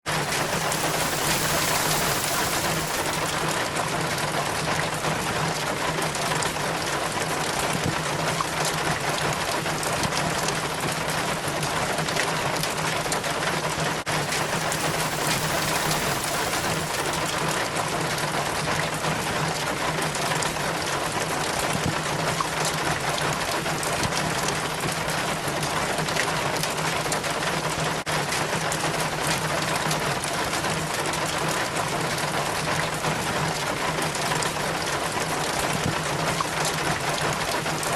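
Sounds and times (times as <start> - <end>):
low hum: 0.1 - 4.0, 14.1 - 17.7
rain falling: 0.1 - 37.9.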